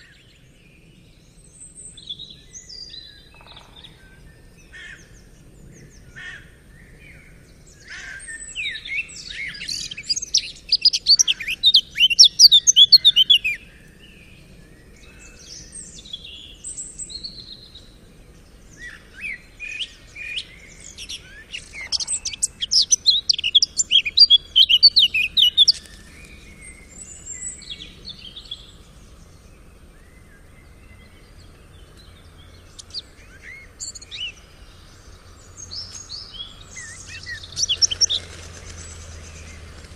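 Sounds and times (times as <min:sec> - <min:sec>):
songbird chirps and trills: 0:00.0 - 0:39.9
faint bird calls: 0:18.8 - 0:28.9.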